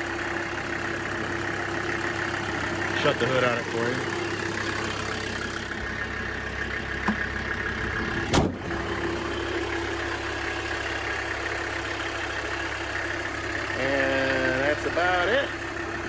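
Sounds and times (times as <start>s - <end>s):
diesel engine idling: 0.0s - 16.0s
car hood slammed shut: 8.3s - 8.8s.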